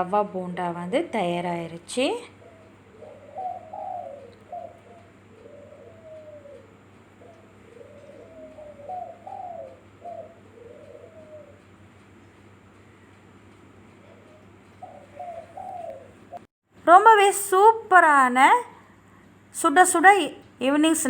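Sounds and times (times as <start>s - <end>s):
steady low hum: 0.0s - 21.0s
bird cooing: 1.1s - 12.2s, 13.9s - 16.5s.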